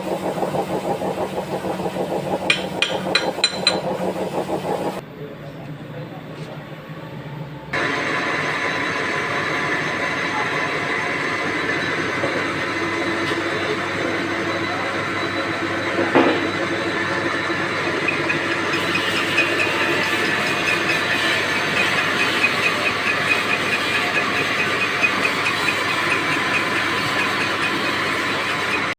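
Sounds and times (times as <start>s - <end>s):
fast even ticking: 0.0s - 5.0s
metal lathe whirring: 0.0s - 5.0s, 7.8s - 28.9s.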